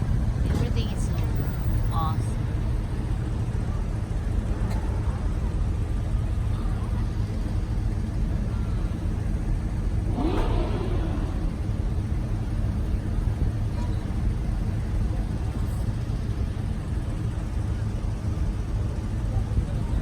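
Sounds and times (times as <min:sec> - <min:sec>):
car engines rumbling: 0:00.0 - 0:20.0.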